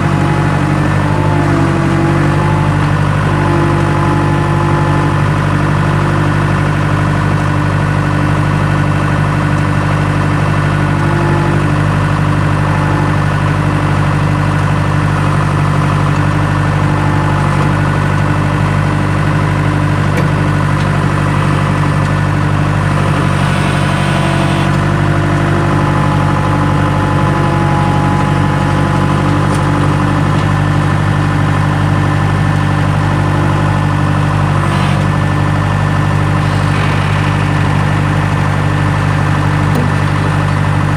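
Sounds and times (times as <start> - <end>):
skid steer engine running: 0.0 - 40.9.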